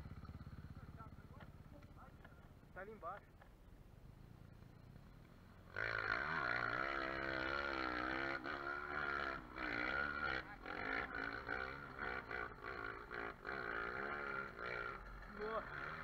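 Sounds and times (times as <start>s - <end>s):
dirt bike engine revving: 4.4s - 16.0s.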